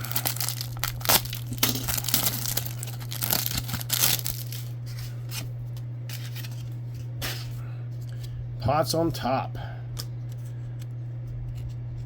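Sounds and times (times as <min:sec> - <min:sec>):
foil wrapper tearing and crinkling: 0:00.0 - 0:05.5
steady low hum: 0:00.0 - 0:12.0.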